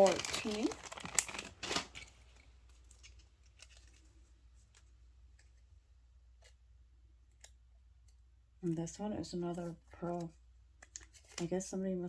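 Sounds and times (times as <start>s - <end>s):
jewelry rustling and clattering: 0.0s - 5.8s.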